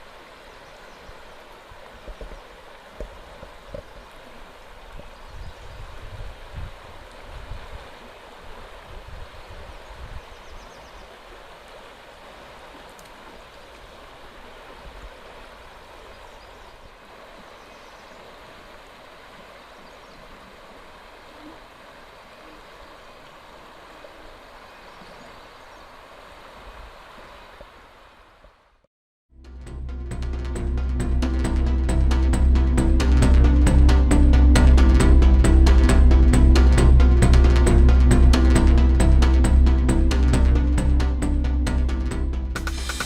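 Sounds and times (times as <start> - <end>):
rushing water: 0.0 - 28.8, 30.2 - 43.0
wind buffeting microphone: 4.8 - 7.9, 8.8 - 10.6.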